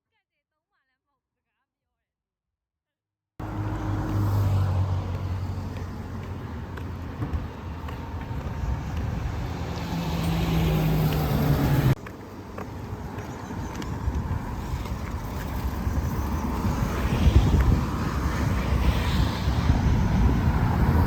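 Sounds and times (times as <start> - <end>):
vehicle engine running: 3.4 - 14.4
road and outdoor noise: 3.4 - 21.0.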